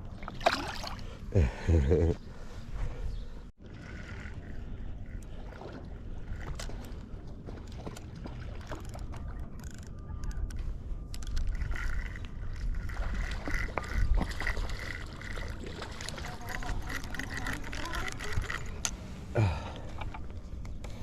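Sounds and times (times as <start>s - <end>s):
wind buffeting microphone: 8.2s - 18.8s.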